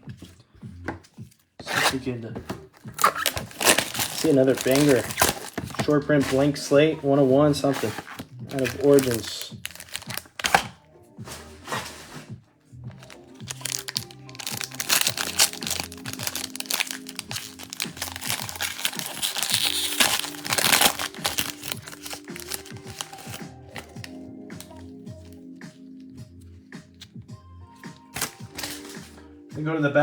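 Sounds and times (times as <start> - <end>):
background music: 0.0 - 30.0
plastic wrapping tearing and crinkling: 2.9 - 6.4, 7.6 - 10.7, 13.0 - 25.4, 28.0 - 29.2.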